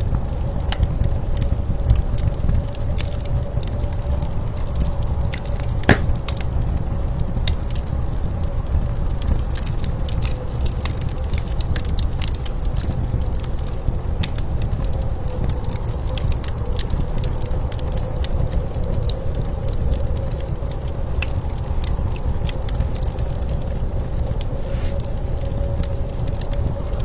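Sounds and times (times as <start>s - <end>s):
wood fire crackling and popping: 5.9s - 6.7s, 10.2s - 17.4s.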